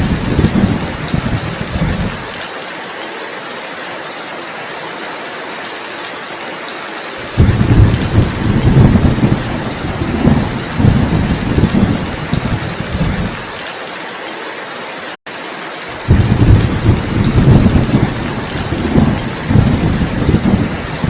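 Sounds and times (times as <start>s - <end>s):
low roll of thunder: 0.0s - 2.2s, 7.3s - 13.5s, 16.0s - 21.0s
heavy rain hissing: 0.0s - 21.0s.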